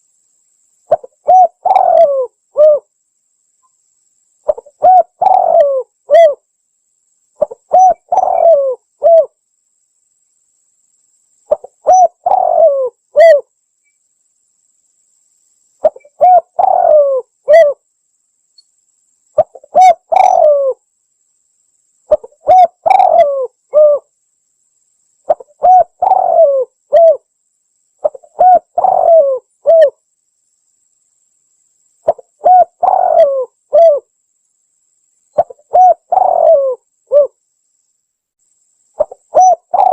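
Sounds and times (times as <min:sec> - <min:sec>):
dove cooing: 0:00.9 - 0:02.9, 0:04.5 - 0:06.4, 0:07.4 - 0:09.3, 0:11.5 - 0:13.5, 0:15.8 - 0:17.8, 0:19.4 - 0:20.8, 0:22.1 - 0:24.1, 0:25.3 - 0:27.3, 0:28.0 - 0:30.0, 0:32.0 - 0:34.1, 0:35.4 - 0:37.4, 0:39.0 - 0:39.9.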